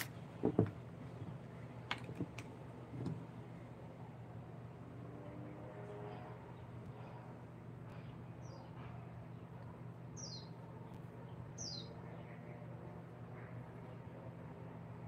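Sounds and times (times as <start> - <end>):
bird chirping: 10.2 - 12.4.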